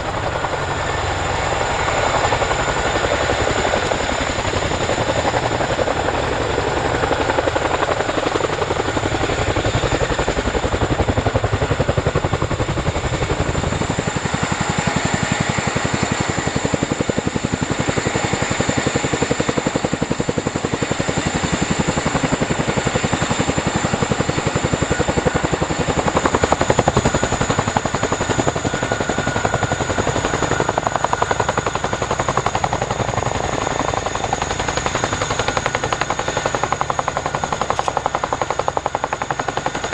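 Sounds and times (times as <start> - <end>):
helicopter rotors beating: 0.0 - 39.9
high turbine whine: 0.0 - 39.9.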